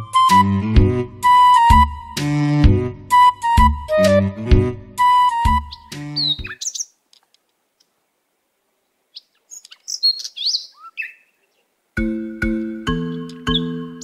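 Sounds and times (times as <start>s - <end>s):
background music: 0.0s - 6.5s, 12.0s - 14.0s
birds chirping: 5.1s - 7.2s, 8.8s - 14.0s.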